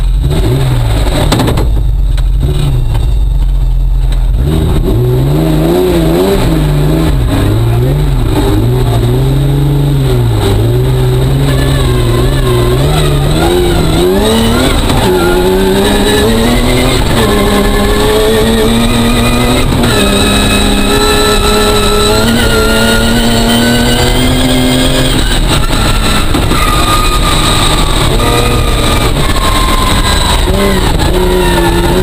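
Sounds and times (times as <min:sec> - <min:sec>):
car engine accelerating hard: 0:00.0 - 0:32.0
tyre and road noise: 0:00.0 - 0:32.0.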